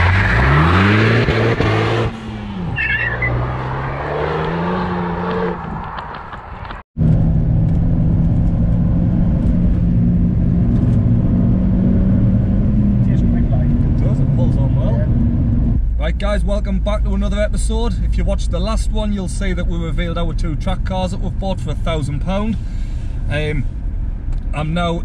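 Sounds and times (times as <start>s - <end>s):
car engine accelerating: 0.0s - 15.9s
wind rush: 3.6s - 15.8s.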